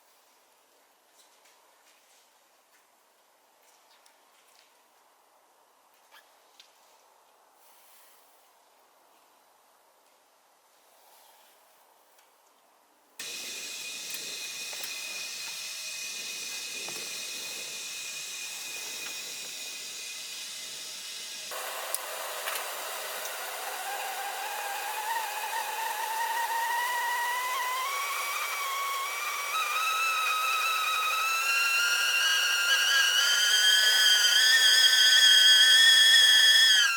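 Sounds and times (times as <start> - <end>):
hiss of steam: 13.2 - 27.0
kettle whistle rising in pitch: 13.2 - 36.9.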